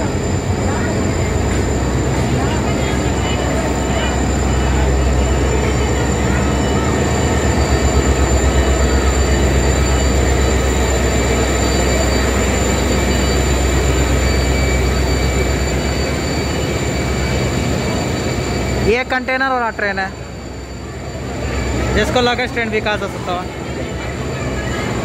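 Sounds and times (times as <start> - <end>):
wheel and rail noise: 0.0 - 19.5
locomotive engine drone: 0.0 - 25.0
thin high whine: 0.0 - 25.0.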